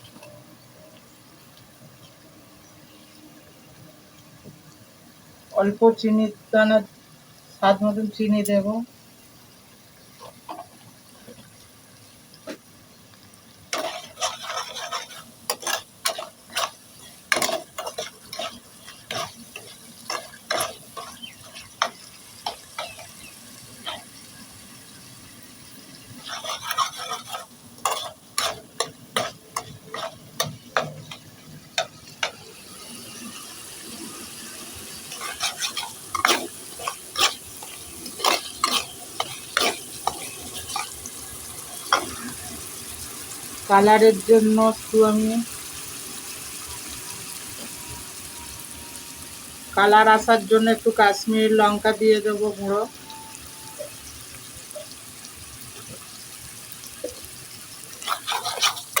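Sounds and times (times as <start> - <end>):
spices sizzling in oil: 0.0 - 59.0
spatula scraping a pan: 10.1 - 11.5, 13.7 - 43.4, 56.9 - 59.0.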